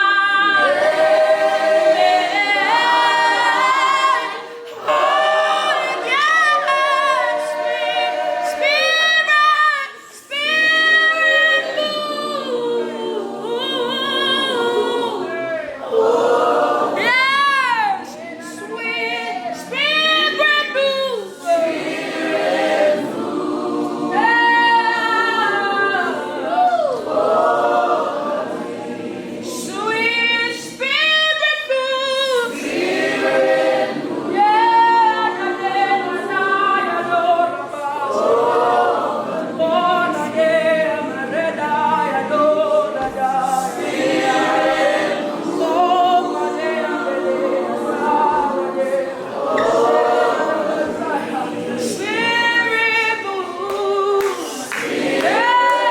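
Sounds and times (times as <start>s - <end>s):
voices singing together: 0.0s - 55.9s.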